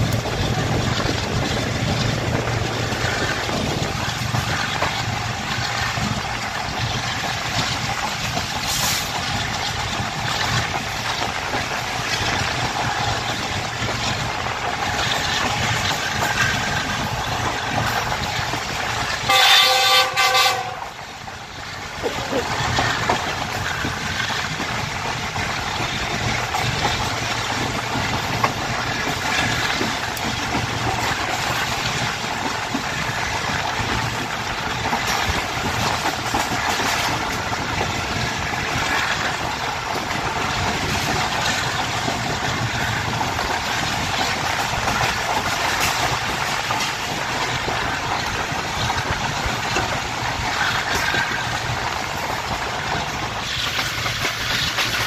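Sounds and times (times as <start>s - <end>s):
passenger train running: 0.0s - 55.0s
loud train horn: 19.2s - 21.0s.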